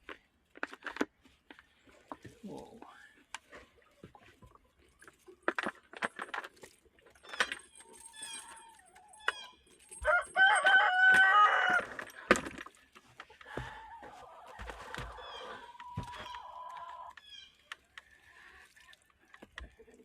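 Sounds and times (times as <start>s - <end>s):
drawn-out chicken call: 8.1s - 12.2s, 13.5s - 17.8s
chickens clucking: 13.3s - 20.0s.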